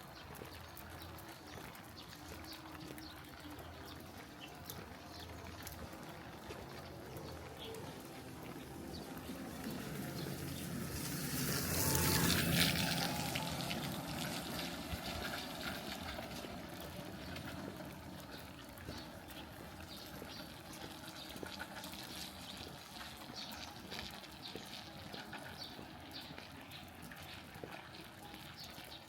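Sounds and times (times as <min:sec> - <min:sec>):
rain falling: 0:00.0 - 0:29.0.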